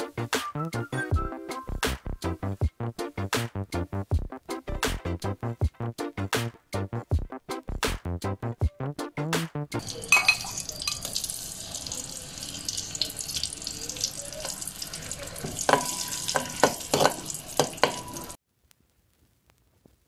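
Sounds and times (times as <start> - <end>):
food sizzling in hot oil: 9.8 - 18.4
metal spatula scraping wok: 15.4 - 18.4.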